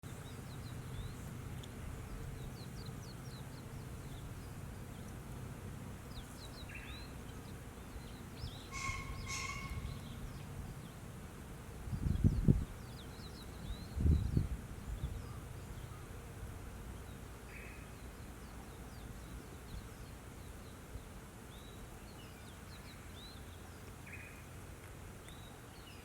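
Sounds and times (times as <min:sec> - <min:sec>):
small birds chirping faintly: 0:00.0 - 0:26.0
loud steady-pitched bird calls: 0:06.0 - 0:11.1, 0:17.0 - 0:20.9.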